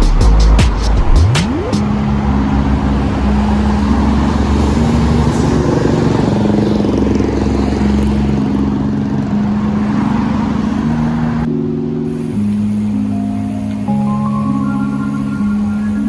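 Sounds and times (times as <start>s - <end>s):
music of held low notes: 11.5s - 16.0s.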